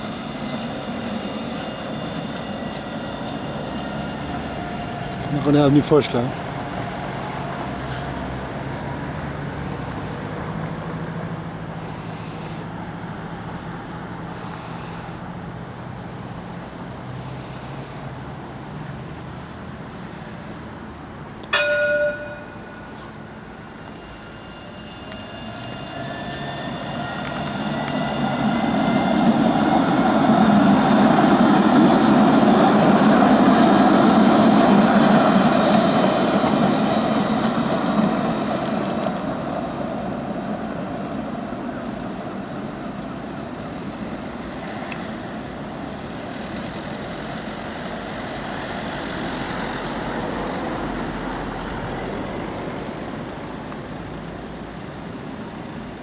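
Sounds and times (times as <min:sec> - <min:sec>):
electric motors whining: 0:00.0 - 0:07.8, 0:22.6 - 0:39.1
tram wheels on rails: 0:00.0 - 0:56.0
short warning tone: 0:21.5 - 0:30.9.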